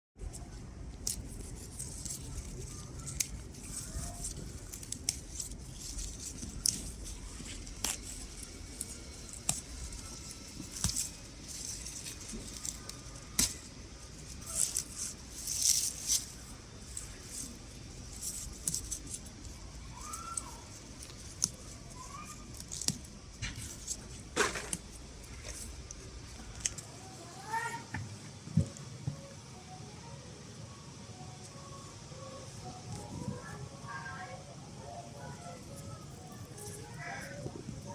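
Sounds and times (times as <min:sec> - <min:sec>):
crisp clicks of stems cut: 0:01.0 - 0:26.8
leaves rustling: 0:01.0 - 0:27.8, 0:32.4 - 0:37.9.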